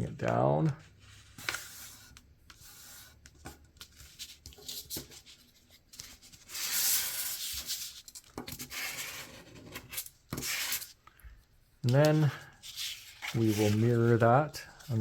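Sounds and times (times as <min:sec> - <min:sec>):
paper being folded: 0:11.8 - 0:15.0
firm rubbing along paper fold: 0:12.0 - 0:15.0.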